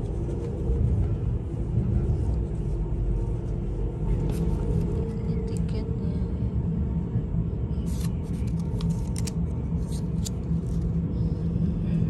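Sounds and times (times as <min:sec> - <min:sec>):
moving train rumble: 0:00.0 - 0:12.0
paper tickets clicking and rustling: 0:07.9 - 0:10.8.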